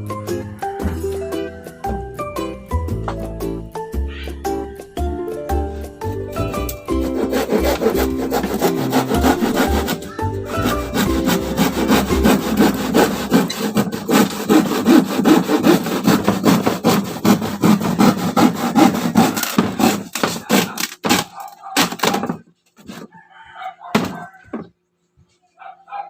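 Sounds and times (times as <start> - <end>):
hand saw cutting wood: 6.5 - 23.1.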